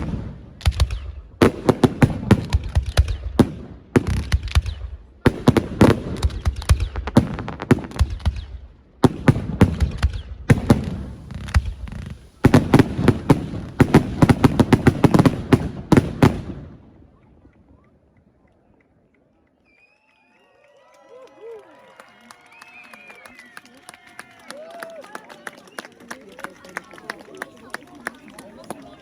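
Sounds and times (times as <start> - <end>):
fireworks bangs and crackling: 0.0 - 18.4.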